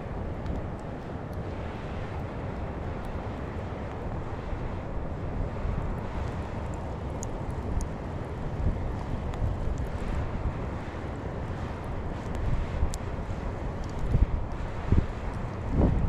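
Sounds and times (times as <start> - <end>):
wind buffeting microphone: 0.0 - 16.0
faint ticks: 6.0 - 8.0, 13.8 - 14.2.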